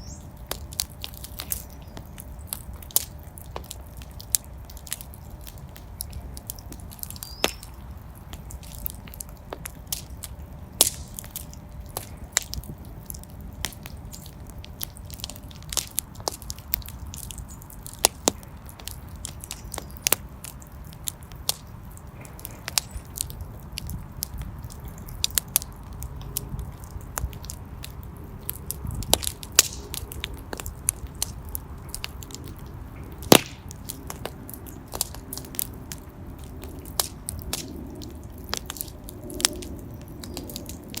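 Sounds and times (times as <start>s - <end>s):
fire crackling and popping: 0.0s - 41.0s
low rumble of flames: 0.0s - 41.0s.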